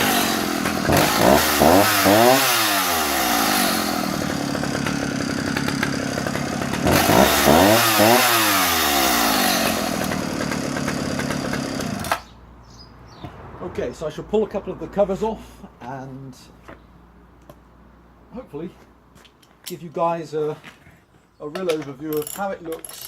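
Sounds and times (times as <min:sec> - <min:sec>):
chainsaw engine idling and revving: 0:00.0 - 0:12.3.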